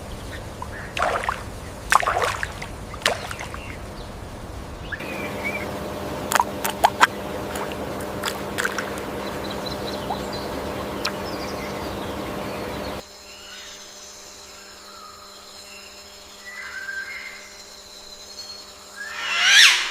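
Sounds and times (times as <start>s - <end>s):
outdoor ambient noise: 0.0s - 19.9s
faint chirps: 4.9s - 13.9s
faint high drone: 4.9s - 15.1s.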